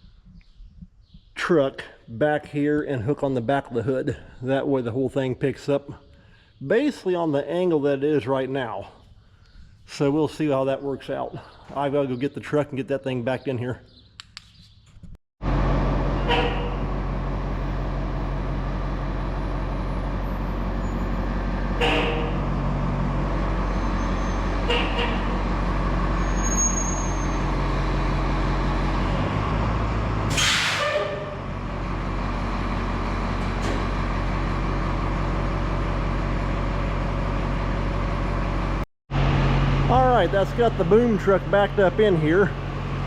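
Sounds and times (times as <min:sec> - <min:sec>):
truck engine running: 0:15.4 - 0:43.0.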